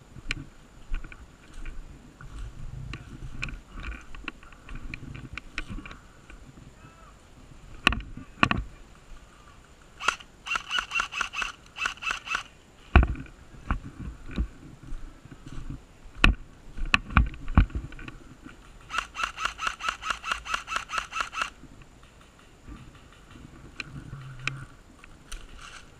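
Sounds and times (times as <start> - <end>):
airsoft gunfire bursts: 10.0 - 12.5, 18.9 - 21.6.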